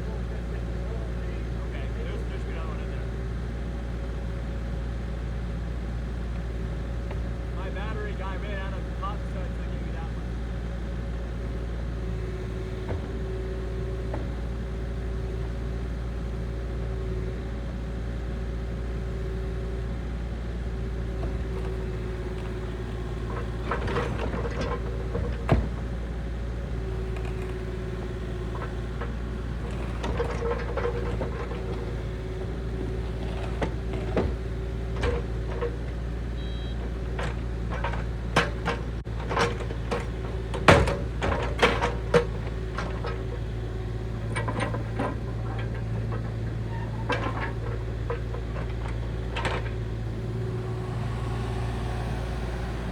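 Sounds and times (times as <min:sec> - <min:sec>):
excavator diesel engine running: 0:00.0 - 0:52.9
hydraulic whine: 0:36.4 - 0:36.7, 0:46.7 - 0:52.9.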